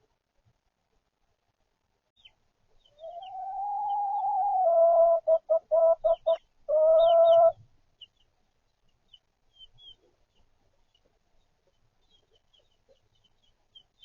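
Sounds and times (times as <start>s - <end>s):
chicken clucking: 2.2s - 8.2s
chicks peeping: 2.2s - 14.0s
chicken calling: 2.8s - 7.6s.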